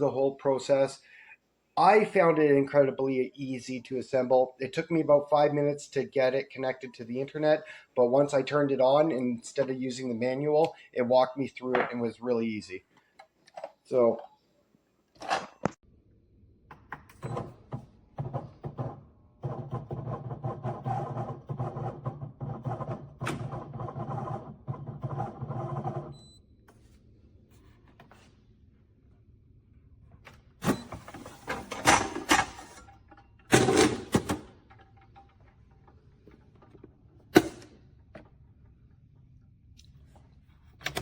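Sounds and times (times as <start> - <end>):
parts clacking and knocking: 31.5 - 39.3.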